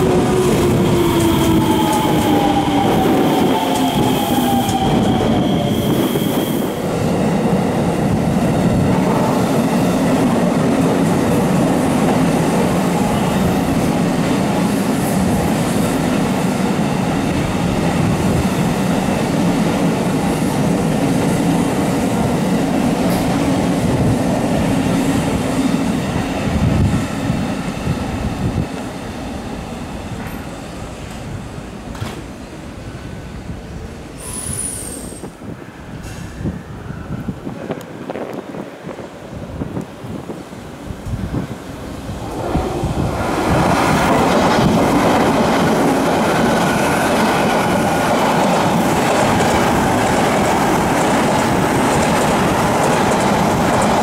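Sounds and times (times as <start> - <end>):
wheels rumbling on rails: 41.0 - 54.0.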